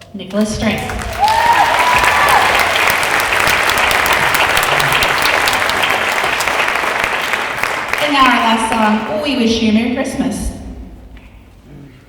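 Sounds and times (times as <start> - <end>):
audience applauding: 0.4 - 9.4
person cheering: 1.0 - 3.1.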